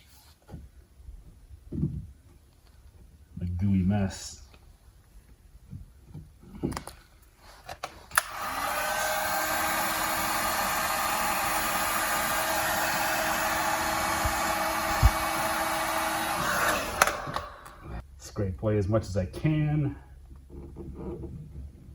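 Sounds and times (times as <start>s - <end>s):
hot-air blower whining: 8.1s - 18.0s
hot-air blower switch click: 8.2s - 8.5s, 16.6s - 17.8s.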